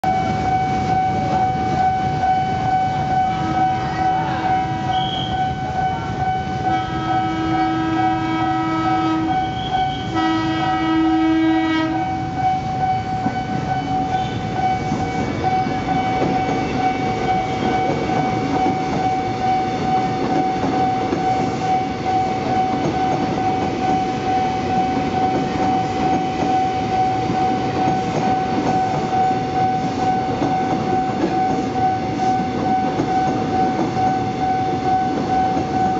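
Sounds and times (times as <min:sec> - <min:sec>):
steady high tone: 0:00.0 - 0:10.4, 0:11.0 - 0:35.9
train rumbling past: 0:00.1 - 0:35.9
train horn blasts: 0:00.2 - 0:12.4, 0:13.0 - 0:17.8.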